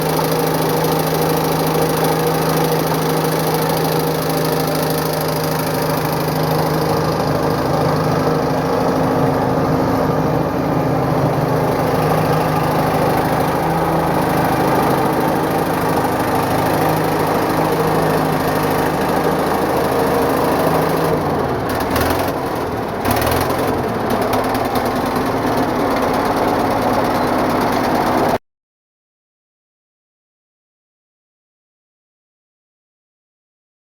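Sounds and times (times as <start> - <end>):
diesel engine running: 0.0 - 28.4.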